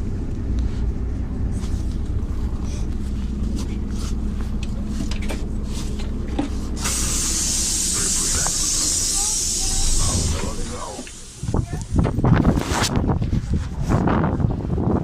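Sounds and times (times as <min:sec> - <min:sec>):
bus engine and road rumble: 0:00.0 - 0:15.0
light rattles of bus fittings: 0:03.6 - 0:07.0
compressed air hiss: 0:06.6 - 0:11.8.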